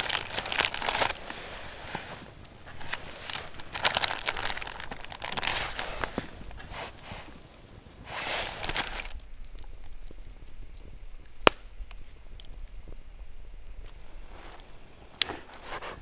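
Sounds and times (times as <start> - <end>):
rustling and crinkling: 0.0 - 16.0.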